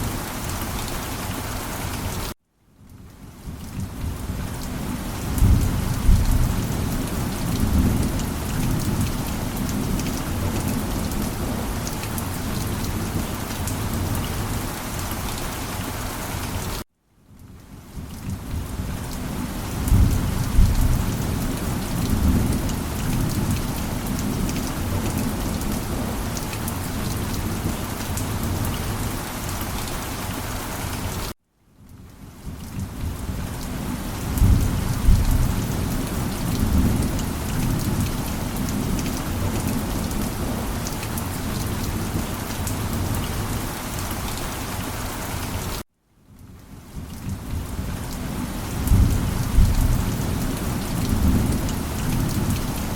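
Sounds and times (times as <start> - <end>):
steady rain: 0.0 - 52.9
rolling thunder rumbles: 19.8 - 28.8, 34.2 - 40.8, 48.8 - 52.9.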